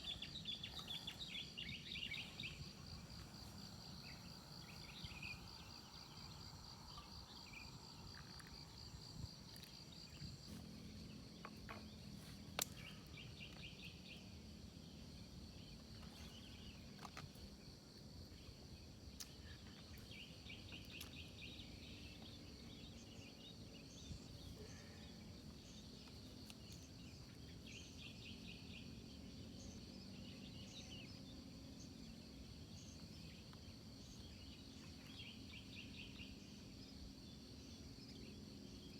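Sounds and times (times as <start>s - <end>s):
low steady hum: 0.0s - 12.2s
insects chirping: 0.0s - 38.9s.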